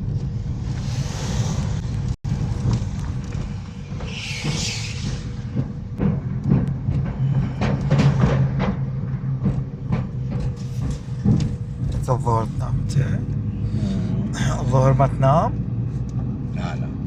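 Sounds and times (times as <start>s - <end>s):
vehicle engine and road noise: 0.0s - 17.0s
short hissing burst: 4.0s - 5.6s.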